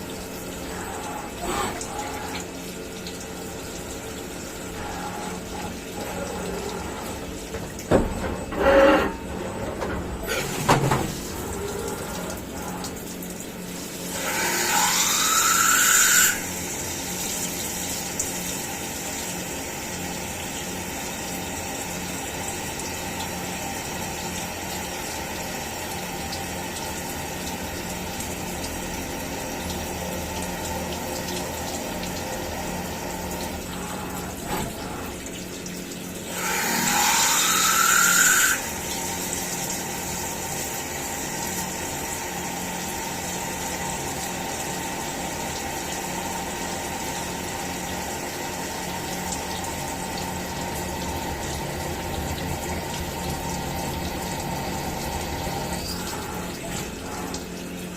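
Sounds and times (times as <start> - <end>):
coolant splashing: 0.0 - 14.2
milling machine running: 0.0 - 57.9.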